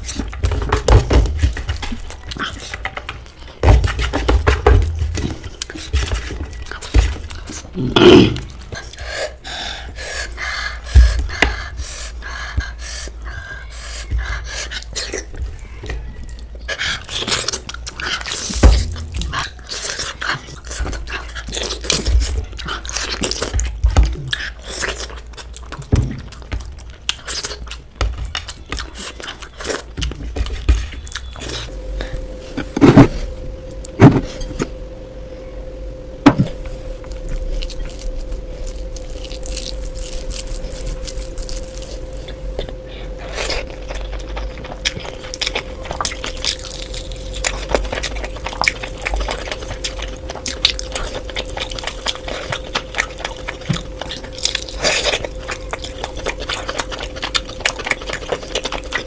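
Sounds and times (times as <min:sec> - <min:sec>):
chewing and smacking: 0:00.0 - 0:07.8, 0:08.4 - 0:32.7, 0:37.0 - 0:59.0
steady hum: 0:00.0 - 0:59.0.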